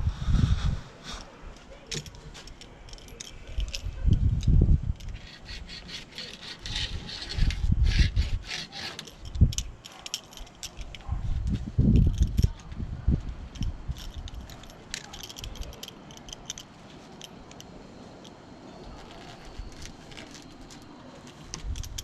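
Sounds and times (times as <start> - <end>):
scraping and rubbing on screen: 0.0 - 17.2, 18.8 - 22.0.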